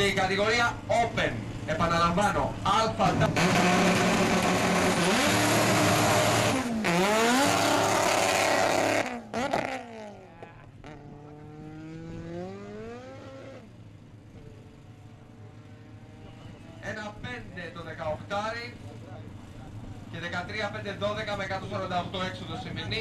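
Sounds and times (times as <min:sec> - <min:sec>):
drag car engine revving: 0:01.4 - 0:14.0.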